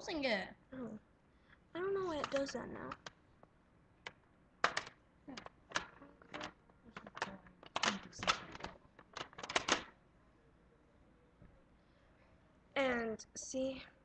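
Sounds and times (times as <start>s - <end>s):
sharp clicks and taps: 2.2s - 9.9s.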